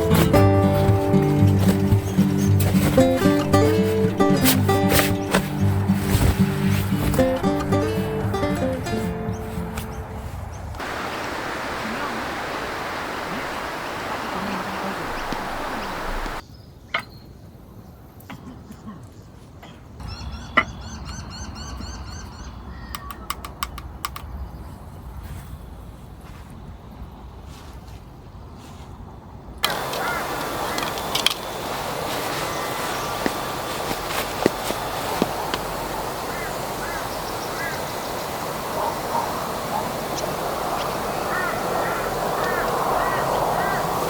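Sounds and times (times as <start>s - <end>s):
breeze rushing: 0.0s - 16.4s, 29.6s - 44.0s
birds chirping: 0.0s - 17.3s, 20.0s - 24.8s, 29.6s - 44.0s
wind on microphone: 8.8s - 16.4s, 29.6s - 44.0s
sharp clicks: 22.9s - 24.3s.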